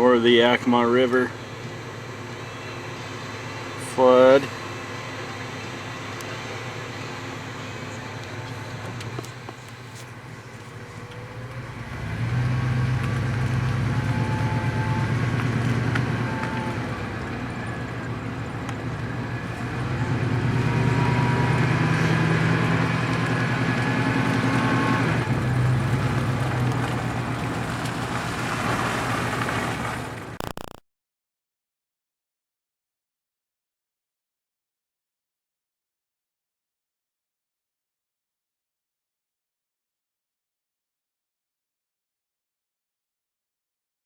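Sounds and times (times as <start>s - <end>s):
road noise: 0.0s - 30.4s
car engine running: 0.7s - 30.6s.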